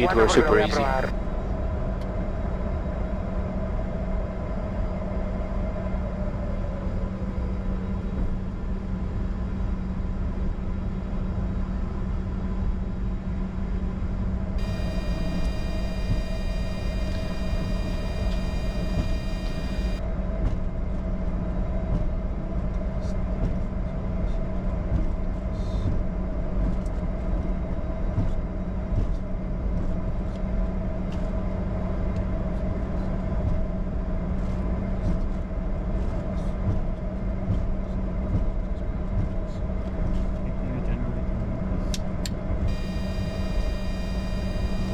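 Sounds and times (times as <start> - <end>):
high multi-tone whine: 0.0 - 1.1, 14.6 - 20.0, 42.7 - 44.9
jet engines idling drone: 0.0 - 1.1, 14.6 - 20.0, 42.7 - 44.9.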